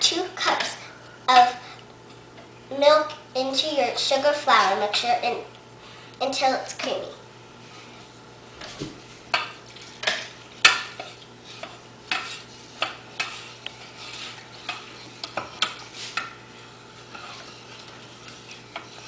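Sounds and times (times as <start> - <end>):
utensil scraping a saucepan: 7.6 - 19.0.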